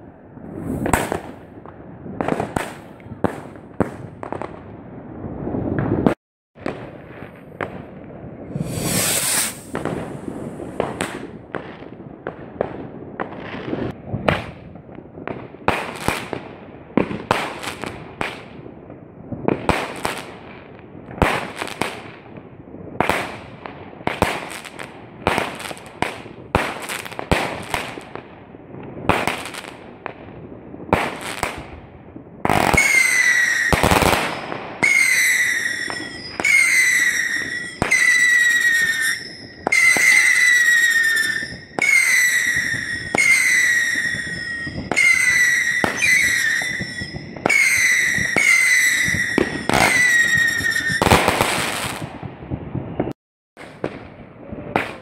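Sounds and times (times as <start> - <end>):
firework bangs with crackle: 0.0 - 55.0
firework shrill whistles: 8.4 - 11.0, 32.6 - 52.0.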